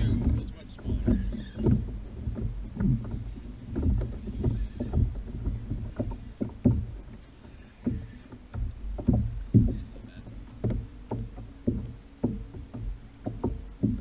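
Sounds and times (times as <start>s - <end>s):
knocks against kayak hull: 0.0s - 14.0s.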